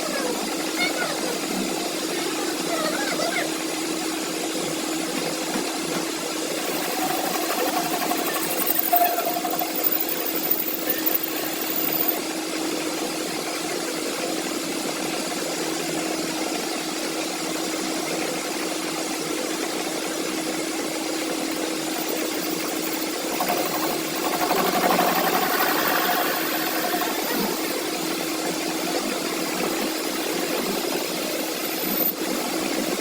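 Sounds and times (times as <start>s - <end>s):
engine running steadily: 17.8s - 33.0s.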